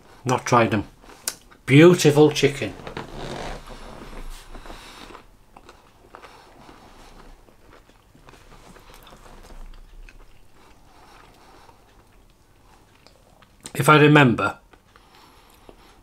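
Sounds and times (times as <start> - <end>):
man chewing food: 1.0 - 1.7, 3.2 - 13.8, 14.6 - 16.0.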